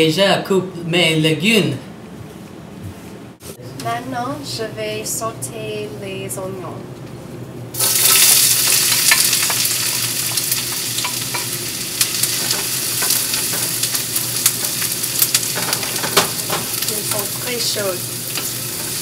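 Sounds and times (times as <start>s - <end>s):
onions sizzling in hot oil: 7.8s - 19.0s.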